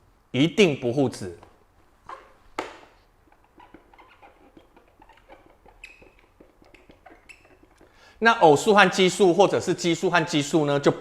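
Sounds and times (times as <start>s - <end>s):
pen scratching while writing: 3.3s - 7.9s.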